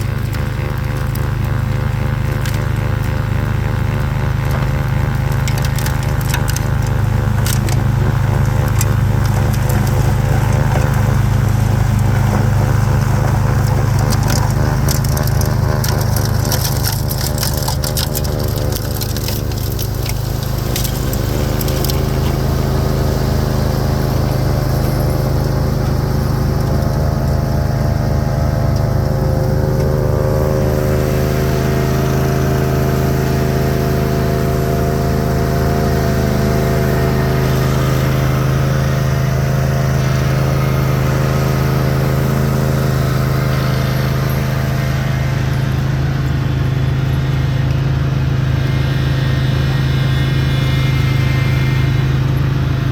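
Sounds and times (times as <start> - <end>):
lawn tractor engine running: 0.0 - 52.9
snow and ice crackling: 0.0 - 52.9.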